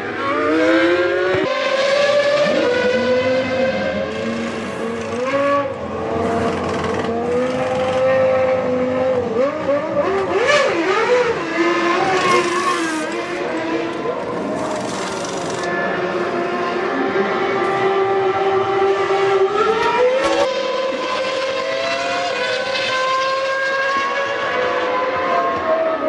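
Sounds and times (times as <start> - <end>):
racing car engine high revs: 0.1 - 26.0.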